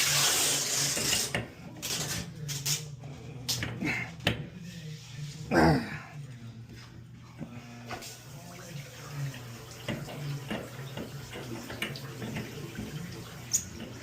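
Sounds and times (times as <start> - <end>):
water running from tap: 0.0 - 1.4, 8.0 - 14.0.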